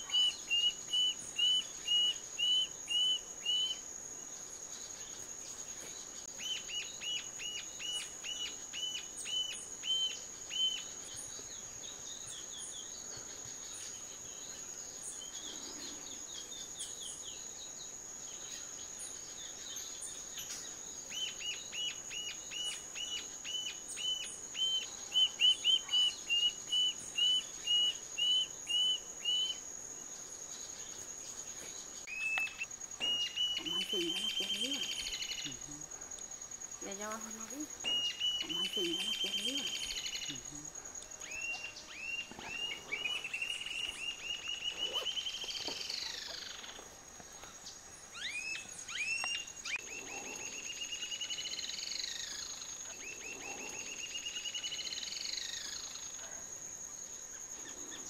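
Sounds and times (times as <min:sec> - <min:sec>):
fainter higher bird calls: 0:32.0 - 0:35.7.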